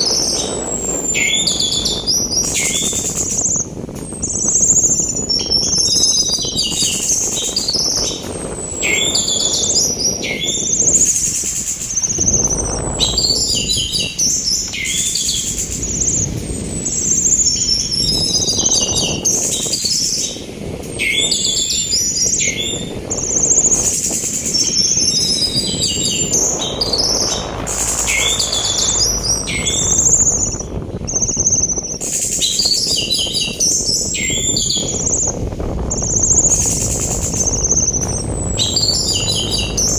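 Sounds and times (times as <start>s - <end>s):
sea wind rushing: 0.0s - 39.9s
thrush singing: 23.7s - 39.9s.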